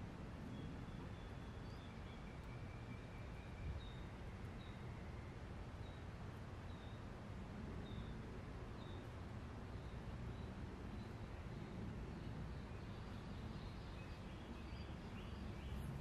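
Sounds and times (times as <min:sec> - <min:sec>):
low rumble of wind: 0:00.0 - 0:16.0
faint birds chirping: 0:00.3 - 0:16.0.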